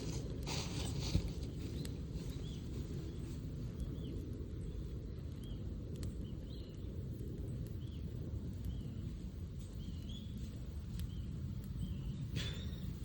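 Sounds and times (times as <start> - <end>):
steady low rumble: 0.0 - 13.0
faint sharp clicks: 5.3 - 7.8
small bird chirping: 8.6 - 13.0.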